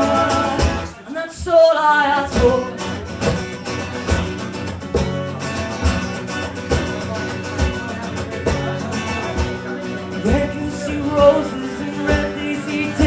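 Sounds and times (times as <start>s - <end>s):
person singing: 0.0s - 3.0s, 9.8s - 13.0s
strummed guitar: 0.0s - 13.0s.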